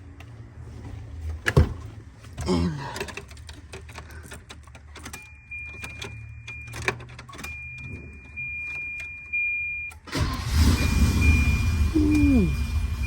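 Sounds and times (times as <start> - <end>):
keys jangling and clicking: 2.8 - 7.6.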